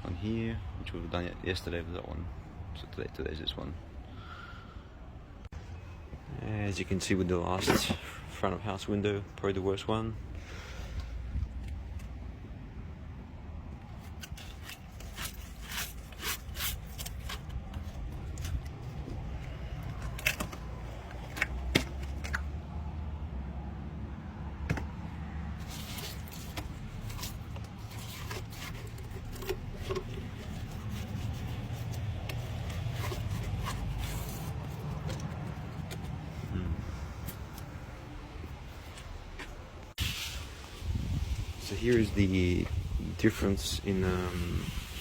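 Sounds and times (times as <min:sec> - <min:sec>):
scraping: 0:13.8 - 0:22.5, 0:25.5 - 0:40.5.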